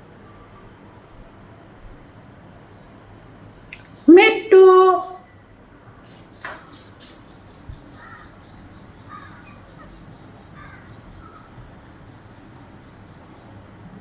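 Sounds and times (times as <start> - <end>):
faint short bird calls: 6.0 - 8.4.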